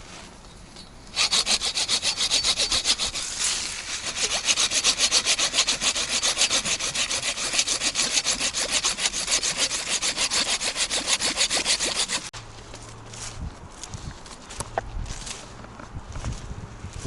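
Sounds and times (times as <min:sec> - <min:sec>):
hand saw cutting wood: 0:01.1 - 0:12.3.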